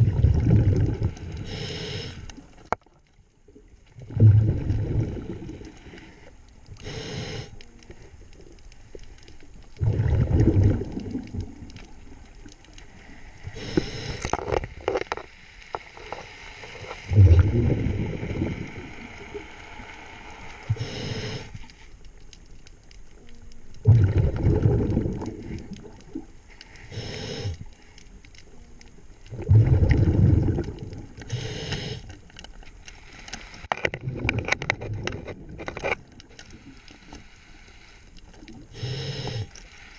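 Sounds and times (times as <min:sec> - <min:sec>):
exhaled air bubbling: 0:00.0 - 0:15.1, 0:16.8 - 0:19.5, 0:23.7 - 0:27.8, 0:29.0 - 0:32.0, 0:33.8 - 0:37.0
regulator inhale hiss: 0:01.3 - 0:02.4, 0:05.2 - 0:07.6, 0:12.9 - 0:14.3, 0:17.9 - 0:21.9, 0:26.5 - 0:28.0, 0:31.2 - 0:32.2, 0:36.4 - 0:39.9.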